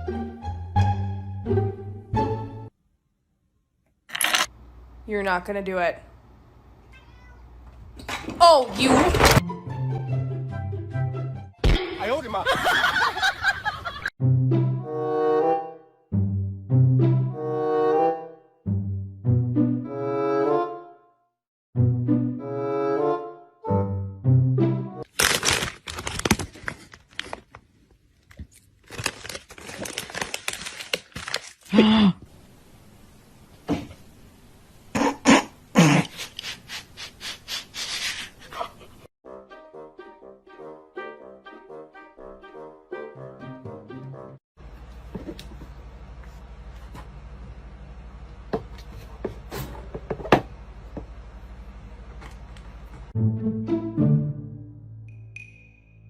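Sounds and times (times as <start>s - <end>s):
crinkling and rustling: 25.1s - 31.7s.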